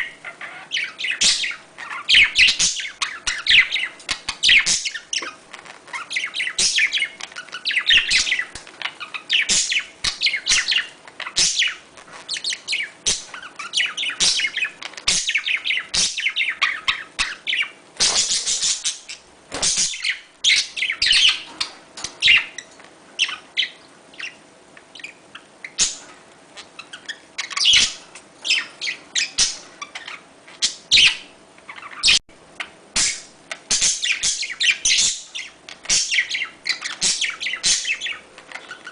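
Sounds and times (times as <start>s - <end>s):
budgerigars chattering: 0.0s - 24.4s, 25.0s - 38.9s.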